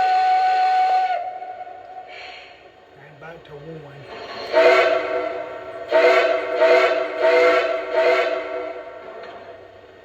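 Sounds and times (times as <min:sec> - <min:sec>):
steam whistle blasts: 0:00.0 - 0:02.2, 0:04.4 - 0:09.0.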